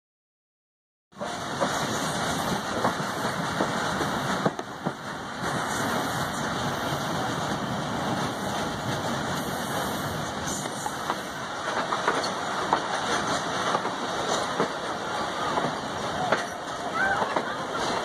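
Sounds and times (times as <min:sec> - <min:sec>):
train wheels rumbling on rails: 0:01.1 - 0:18.0
rushing air: 0:01.4 - 0:11.8.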